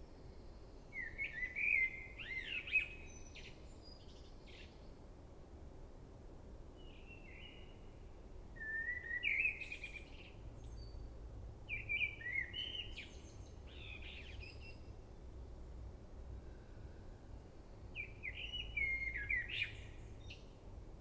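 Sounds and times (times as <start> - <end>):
songbird singing: 11.7 - 14.9, 17.9 - 20.6.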